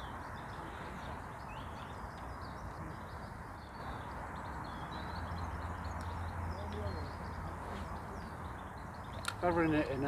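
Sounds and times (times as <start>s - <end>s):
outdoor background hiss: 0.0s - 10.0s
small birds chirping: 0.0s - 10.0s.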